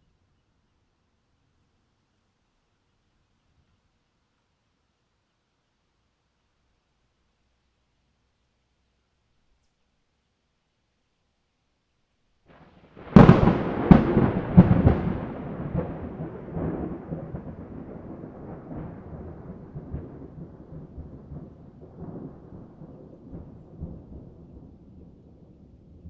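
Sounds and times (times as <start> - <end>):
thunder cracks and rumble: 13.0 - 26.0.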